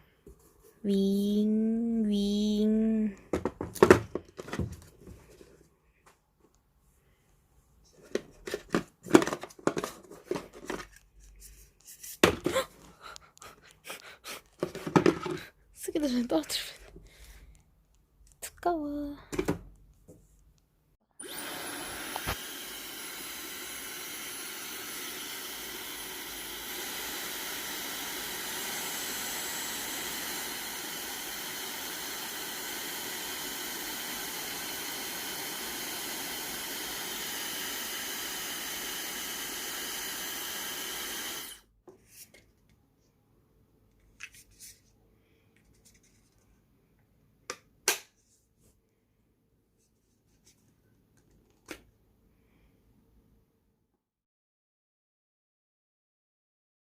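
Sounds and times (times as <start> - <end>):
hair dryer running: 21.2 - 41.6.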